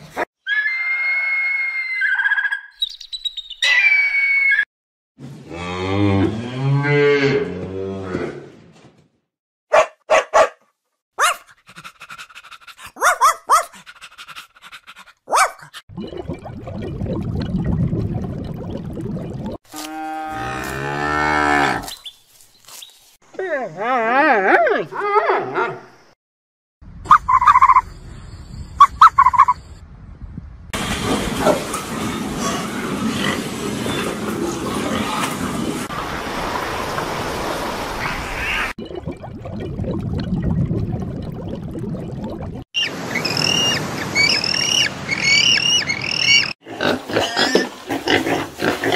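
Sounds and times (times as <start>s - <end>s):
young dog yipping: 11.2s - 11.5s, 12.9s - 13.8s, 15.3s - 15.8s
cow mooing: 19.8s - 21.9s
pigs grunting and squealing: 45.8s - 48.9s.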